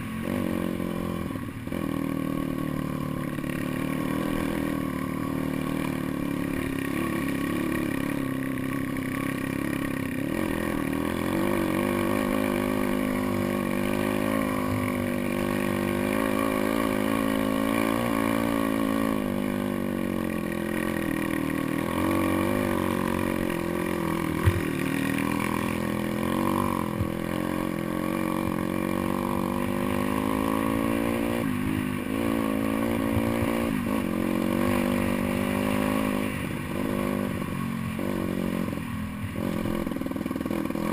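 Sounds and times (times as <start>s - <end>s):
small motorbike engine revving: 0.0s - 40.9s
sharp knock: 24.4s - 24.8s.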